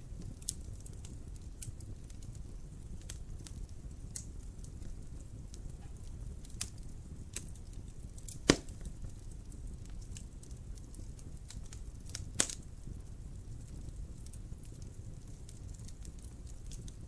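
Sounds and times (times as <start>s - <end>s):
fire crackles: 0.0s - 17.0s
wood fire rumbling: 0.0s - 17.0s
loud fire pop: 8.4s - 8.9s.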